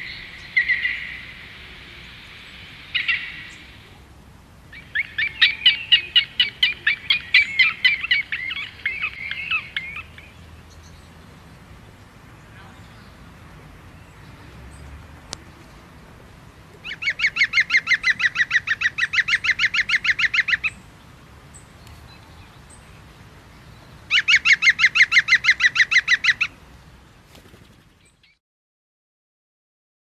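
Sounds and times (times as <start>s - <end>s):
bird calling in rapid notes: 4.7s - 10.3s, 16.8s - 20.8s, 24.1s - 26.6s.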